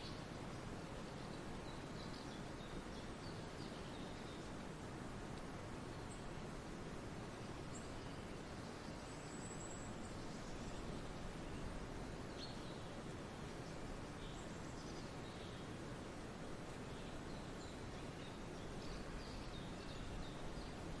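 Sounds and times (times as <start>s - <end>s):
steady background hiss: 0.0s - 21.0s
faint bird chirps: 7.4s - 15.8s, 16.8s - 21.0s.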